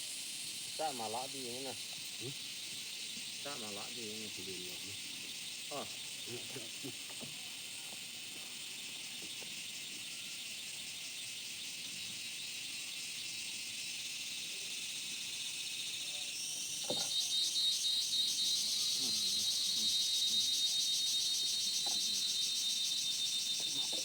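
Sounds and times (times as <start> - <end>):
insects shrilling: 0.0 - 24.0.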